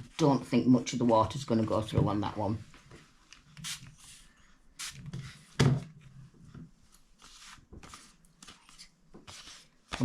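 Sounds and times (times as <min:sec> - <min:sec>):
spray bottle spritzing: 0:03.6 - 0:04.0, 0:04.8 - 0:05.0.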